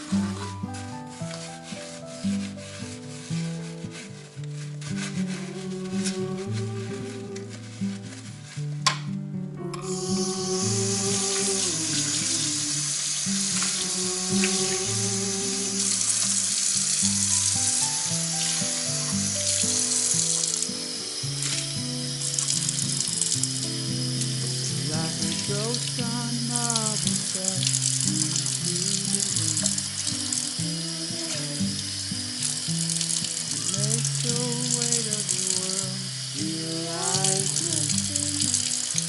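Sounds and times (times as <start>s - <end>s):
instrumental background music: 0.0s - 39.0s
tap water running into sink: 9.7s - 39.0s.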